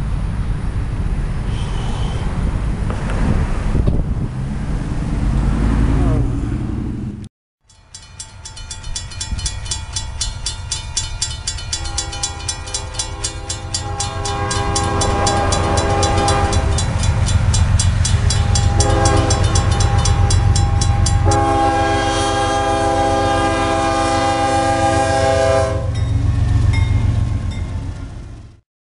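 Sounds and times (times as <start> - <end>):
rapid train clatter: 7.8 - 21.9
train air horn blasts: 11.7 - 26.0.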